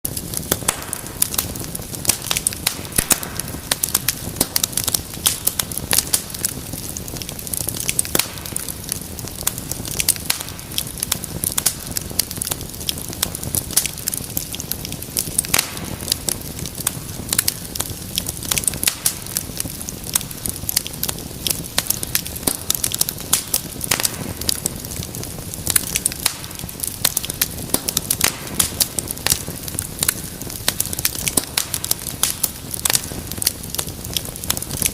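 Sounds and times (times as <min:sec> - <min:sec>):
low rumble of flame: 0:00.0 - 0:34.9
wood fire crackling: 0:00.0 - 0:34.9.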